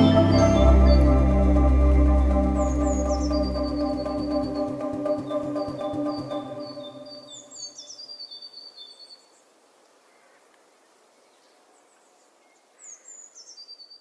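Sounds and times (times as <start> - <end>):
soft organ-like music: 0.0 - 7.7
bird singing: 0.0 - 9.4
outdoor ambience hiss: 0.0 - 14.0.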